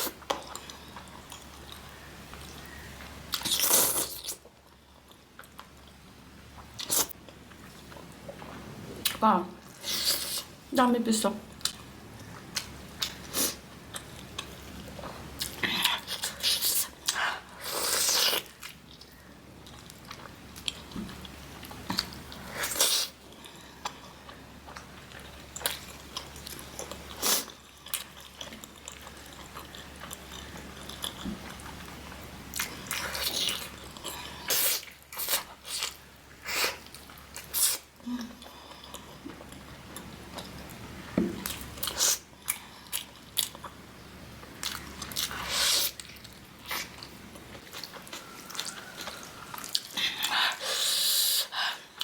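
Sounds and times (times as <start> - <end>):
close chewing and biting: 44.5 - 52.0.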